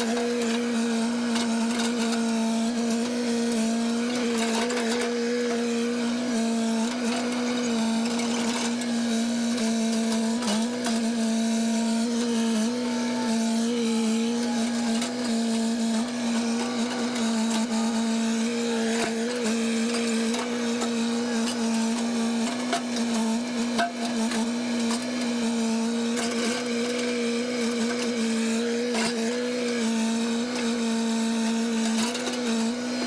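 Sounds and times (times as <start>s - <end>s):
high-pitched machine running: 6.8s - 25.2s.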